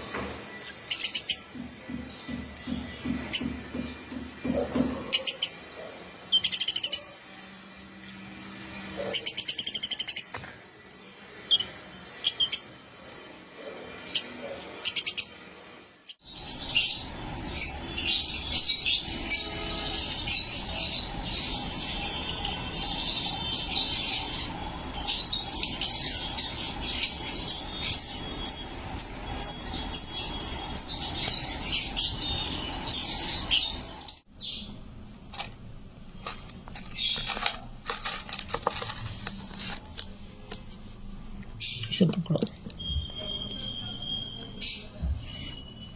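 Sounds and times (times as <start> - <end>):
lovebirds chirping: 16.0 - 34.8.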